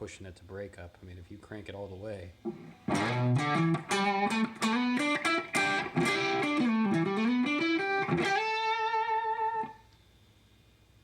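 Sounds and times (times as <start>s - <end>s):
electric guitar single notes: 2.5s - 9.8s.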